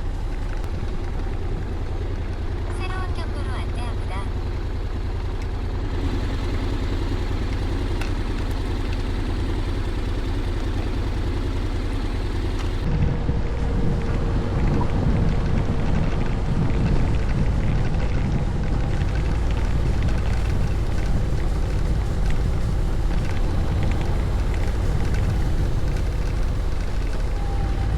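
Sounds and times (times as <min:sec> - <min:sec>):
scooter engine and road rumble: 0:00.0 - 0:27.9
wind buffeting microphone: 0:05.8 - 0:27.9.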